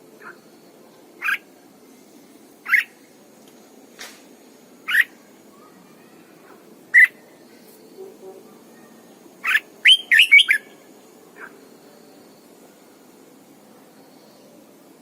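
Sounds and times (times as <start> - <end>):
bulbul whistled calls: 2.6 - 2.9, 4.9 - 5.2, 6.9 - 7.2, 9.4 - 10.8.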